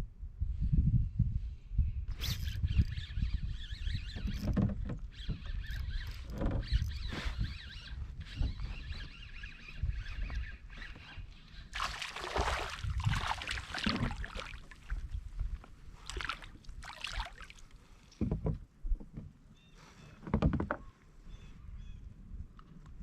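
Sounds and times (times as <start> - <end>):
water splashing around a kayak: 11.8 - 18.2.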